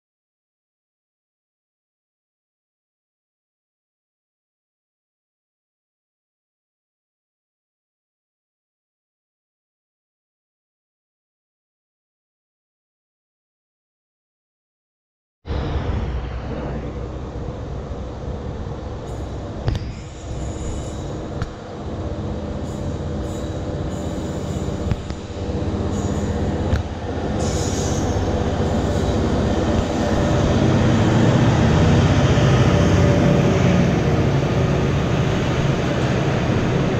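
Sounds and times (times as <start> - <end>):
diesel locomotive engine: 15.5 - 36.9.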